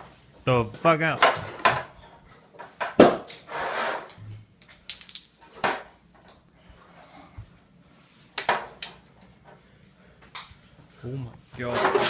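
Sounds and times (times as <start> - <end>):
hard objects knocking: 4.1 - 5.3.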